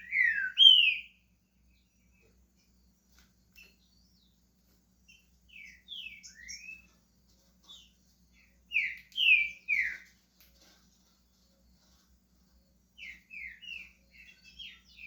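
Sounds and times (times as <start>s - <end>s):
bird singing whistled notes: 0.0s - 1.2s, 5.0s - 7.0s, 7.7s - 10.1s, 13.0s - 15.0s.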